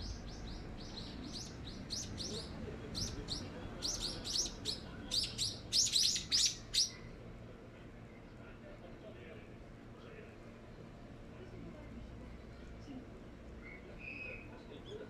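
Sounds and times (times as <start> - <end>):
small bird chirping: 0.0 - 7.1.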